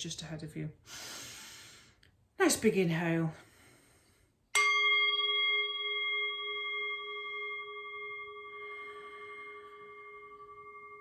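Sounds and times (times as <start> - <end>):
meditation bell ringing: 4.6 - 11.0.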